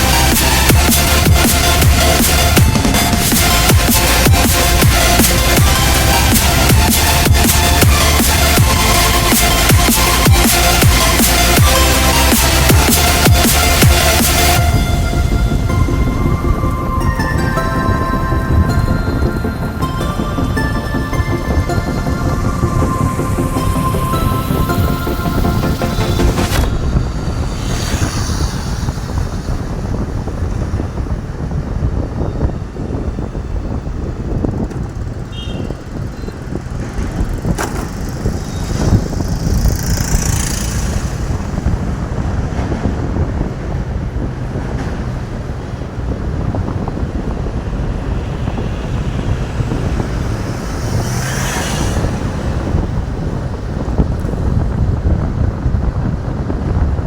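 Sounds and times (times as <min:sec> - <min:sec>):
motorcycle engine rumble: 0:00.0 - 0:57.0
wind noise on microphone: 0:00.0 - 0:57.0
brief whooshes: 0:25.3 - 0:30.6, 0:48.2 - 0:53.3.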